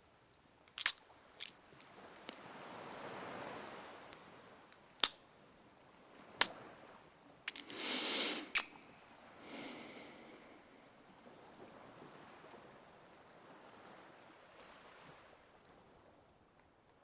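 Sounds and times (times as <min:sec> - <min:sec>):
kissing lip smacks: 0:00.7 - 0:01.5, 0:05.0 - 0:05.2, 0:07.5 - 0:09.2
breathy exhale: 0:07.6 - 0:10.9.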